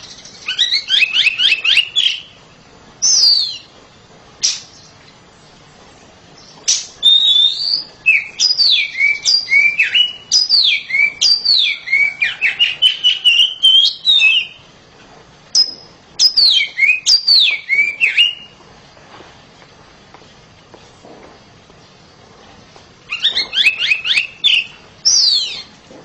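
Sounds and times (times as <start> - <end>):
bird singing whistled notes: 0.0 - 2.4, 3.0 - 3.7, 6.4 - 14.6, 15.6 - 18.6, 23.1 - 25.8.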